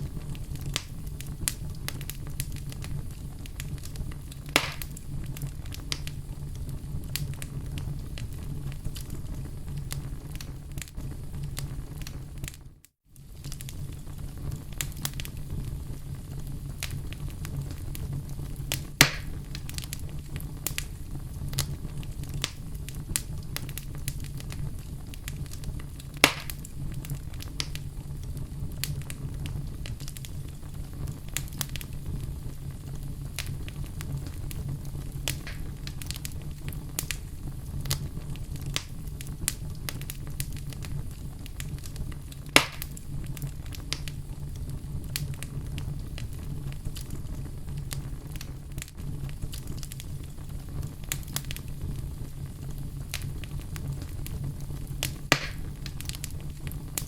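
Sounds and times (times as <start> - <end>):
fire crackling: 0.0 - 57.0
loud sharp pops: 4.5 - 5.0, 19.0 - 19.4, 26.2 - 26.7, 35.3 - 35.7, 42.6 - 43.0, 55.3 - 55.7.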